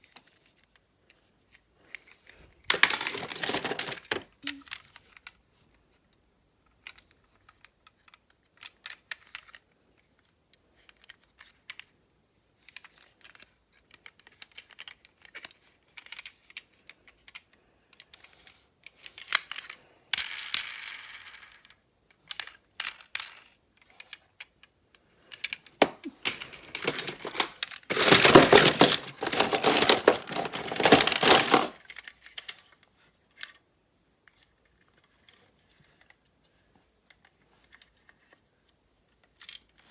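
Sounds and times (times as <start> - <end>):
rustling and clattering: 2.7 - 4.3, 25.8 - 31.8
small hard objects clicking: 2.7 - 4.7, 25.8 - 31.8.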